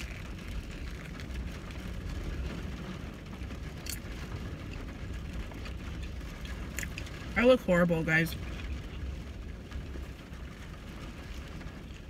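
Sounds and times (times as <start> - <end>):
low rumble in car cabin: 0.0 - 12.0
chewing burger: 5.5 - 7.1.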